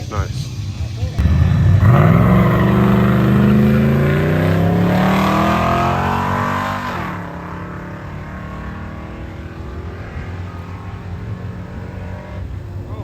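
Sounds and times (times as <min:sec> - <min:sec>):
drag racing engines accelerating: 0:00.0 - 0:13.0.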